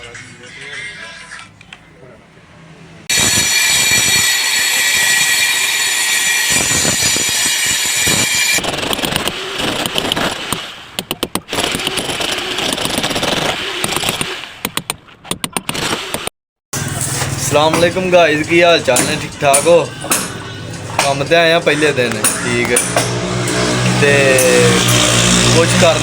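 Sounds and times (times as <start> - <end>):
angle grinder cutting: 3.1 - 8.6, 16.8 - 26.0.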